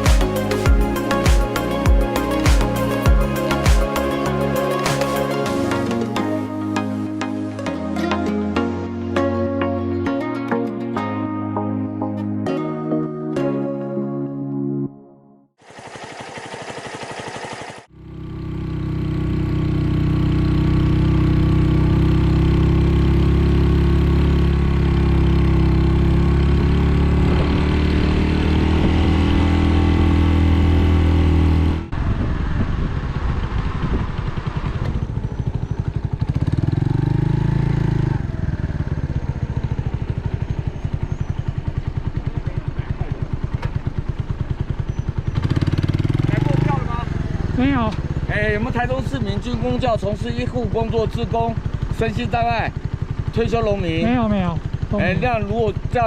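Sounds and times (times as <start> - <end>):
motorcycle engine running: 15.6 - 56.0.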